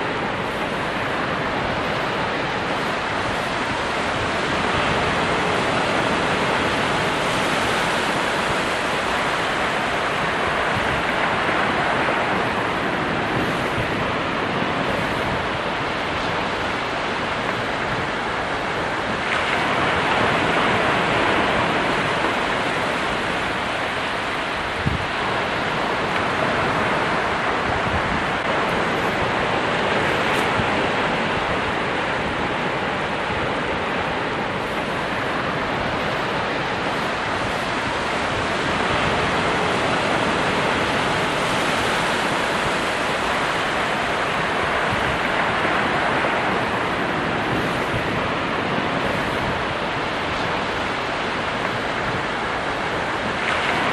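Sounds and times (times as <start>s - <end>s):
waves breaking: 0.0s - 53.9s.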